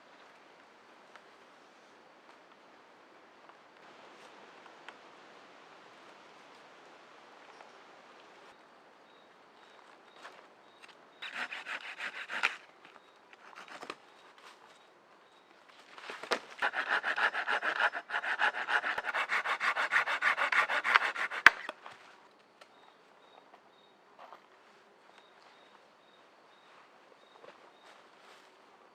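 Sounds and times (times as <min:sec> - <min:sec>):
hand saw cutting wood: 0:11.2 - 0:12.6, 0:13.4 - 0:14.0, 0:16.6 - 0:21.8.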